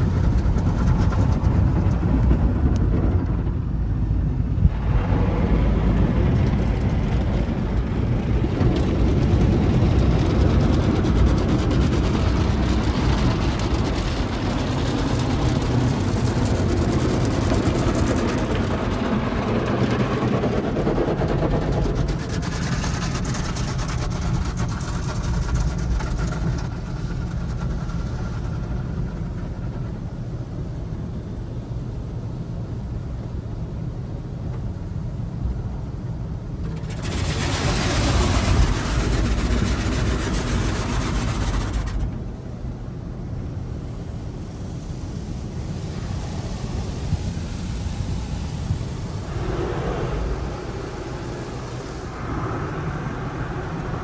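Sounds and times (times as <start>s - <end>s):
low rumble: 0.0s - 30.2s, 36.5s - 54.0s
faint whine: 36.6s - 54.0s
loud rush: 36.8s - 42.5s, 43.8s - 54.0s
rushing water noise: 44.3s - 54.0s.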